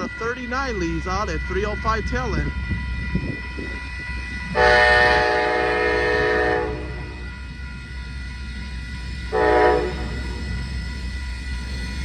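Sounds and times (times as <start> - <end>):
train rumble: 0.0 - 12.0
train air horn blasts: 4.5 - 7.2, 9.3 - 10.4.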